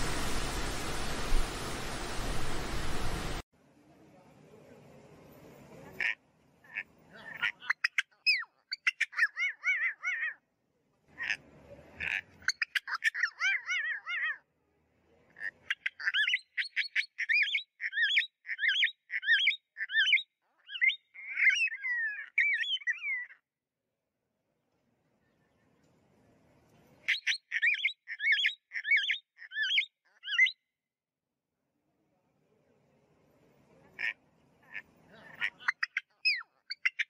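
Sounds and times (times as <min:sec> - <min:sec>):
cockatoos screeching calls: 0:06.7 - 0:10.4, 0:12.0 - 0:14.4.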